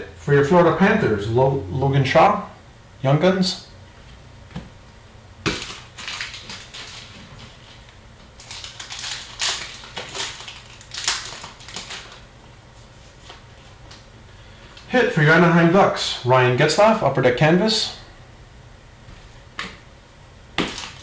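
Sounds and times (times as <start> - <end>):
wrappers crinkling: 5.5 - 14.0, 20.6 - 21.0.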